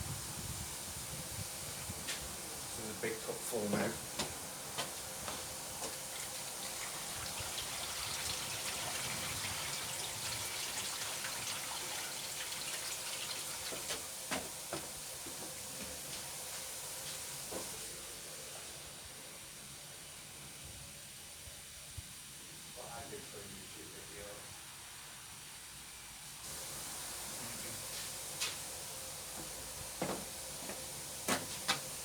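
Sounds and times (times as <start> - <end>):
water running and splashing: 5.8 - 14.7.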